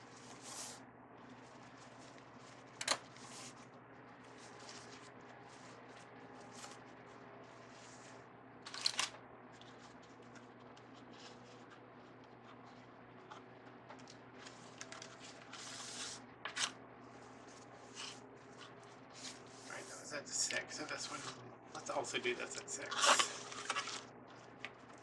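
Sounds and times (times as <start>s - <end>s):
ribbon rustling and crinkling: 0.0s - 8.2s, 9.5s - 16.2s.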